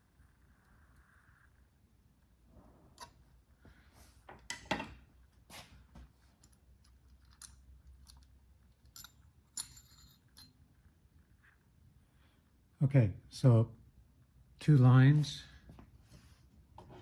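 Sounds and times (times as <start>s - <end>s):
metal tools scraping: 8.9s - 10.6s.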